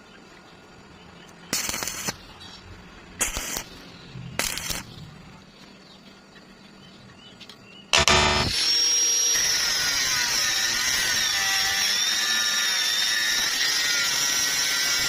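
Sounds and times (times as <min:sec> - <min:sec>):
arc welding crackling: 0:01.3 - 0:05.1, 0:07.9 - 0:15.0.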